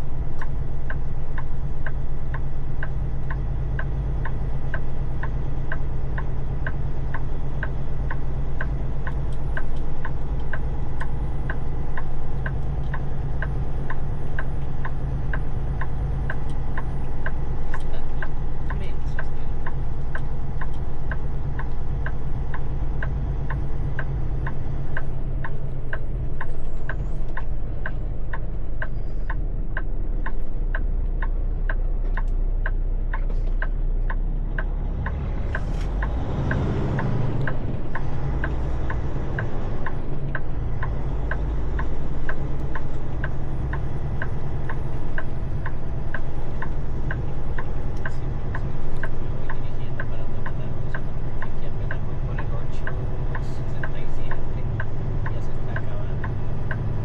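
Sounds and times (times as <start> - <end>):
truck engine idling: 0.0 - 57.0
steady clicking: 0.2 - 57.0
rushing swell: 34.9 - 39.1.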